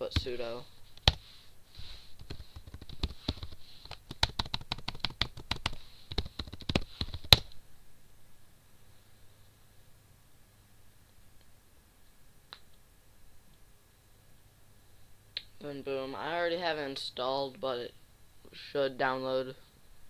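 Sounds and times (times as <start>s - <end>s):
typing on computer keyboard: 1.0s - 1.2s, 2.2s - 7.5s.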